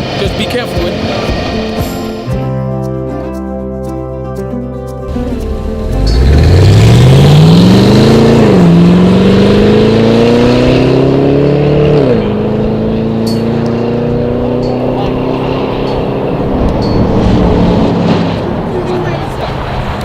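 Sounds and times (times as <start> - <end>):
car engine accelerating hard: 5.2 - 20.0.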